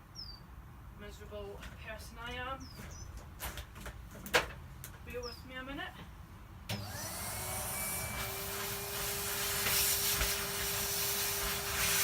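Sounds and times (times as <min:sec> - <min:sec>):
vacuum cleaner running: 0:06.7 - 0:12.0.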